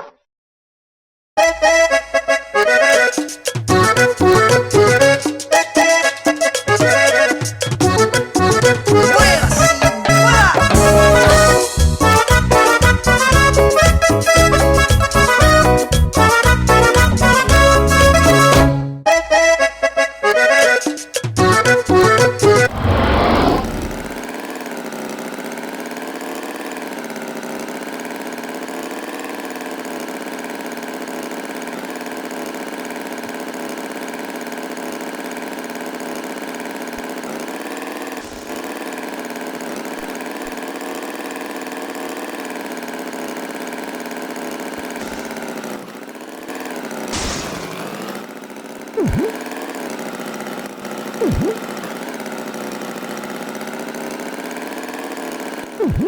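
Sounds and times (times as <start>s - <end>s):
tractor engine idling: 6.5s - 15.9s, 23.6s - 56.0s.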